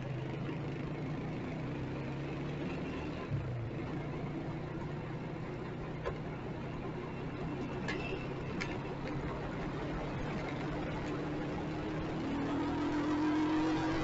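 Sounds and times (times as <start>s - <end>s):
city traffic: 0.0s - 14.0s
motorcycle engine running: 6.8s - 14.0s.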